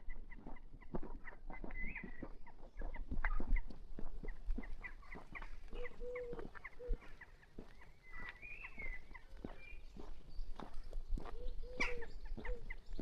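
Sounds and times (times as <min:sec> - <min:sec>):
birds chirping: 0:04.2 - 0:13.0
bird low held call: 0:05.8 - 0:07.1, 0:11.3 - 0:12.7.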